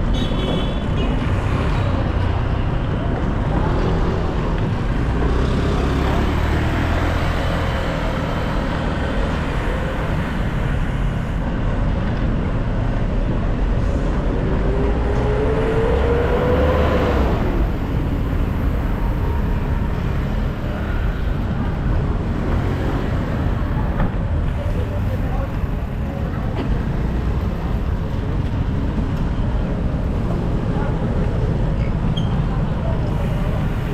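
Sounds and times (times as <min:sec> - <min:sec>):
dense road traffic: 0:00.0 - 0:33.9
vehicle engine rising in pitch: 0:14.5 - 0:21.1.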